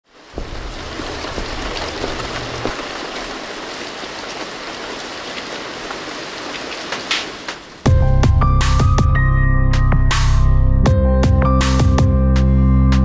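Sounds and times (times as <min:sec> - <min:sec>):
steady rain hiss: 0:00.0 - 0:07.9
rain drop ticks: 0:00.2 - 0:07.9.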